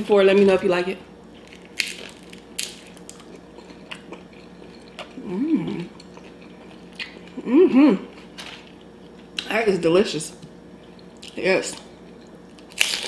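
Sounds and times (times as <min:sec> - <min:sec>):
chewing with small crunches: 0:01.3 - 0:07.4
person humming: 0:05.2 - 0:05.9, 0:07.4 - 0:08.1.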